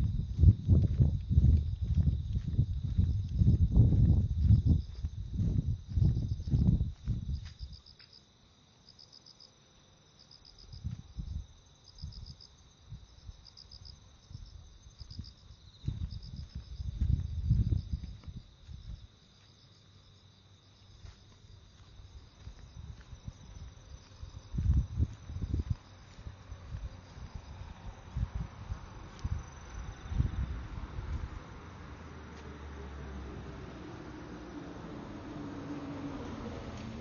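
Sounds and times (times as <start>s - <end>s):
low rumbles: 0.0s - 7.6s
crickets chirping: 0.0s - 37.0s.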